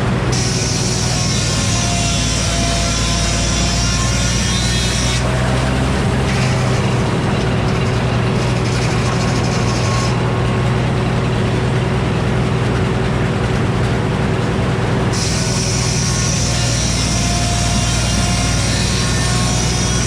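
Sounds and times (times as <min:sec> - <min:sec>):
sawmill engine drone: 0:00.0 - 0:20.0
hiss: 0:15.2 - 0:20.0.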